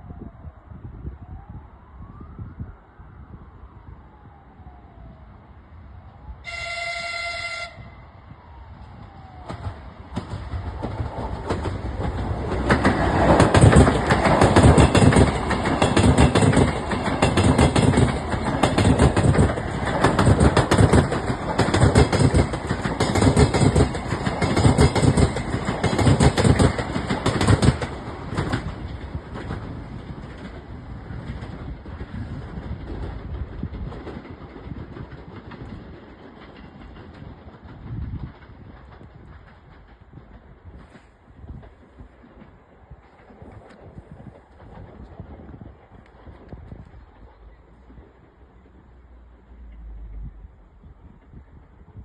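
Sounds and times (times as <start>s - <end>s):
train horn blast: 6.4s - 8.2s
train wheels clattering on rails: 9.4s - 52.0s.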